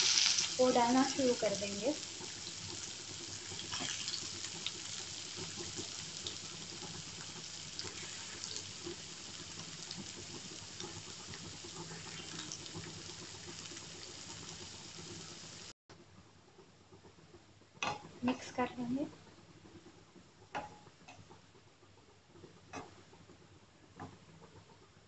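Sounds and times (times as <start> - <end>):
cabbage sizzling in hot oil: 0.0 - 15.7.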